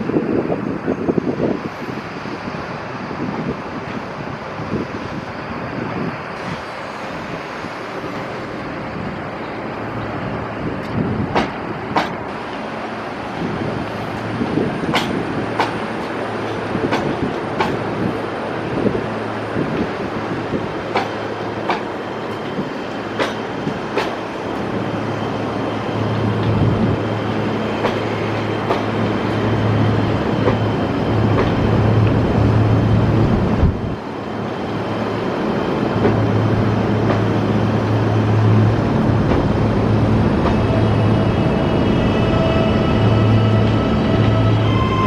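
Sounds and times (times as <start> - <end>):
running train noise: 0.0 - 45.0
train wheels clicking over rail joints: 10.8 - 12.7, 14.0 - 18.2, 20.8 - 24.8, 27.6 - 32.2, 37.0 - 37.4, 39.0 - 40.8.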